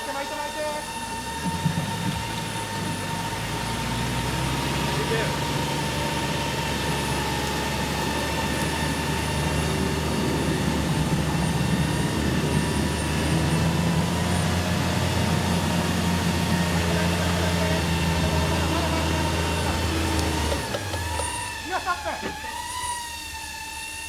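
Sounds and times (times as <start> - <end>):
car engine running: 0.0 - 24.0
electric winch humming: 0.0 - 24.0.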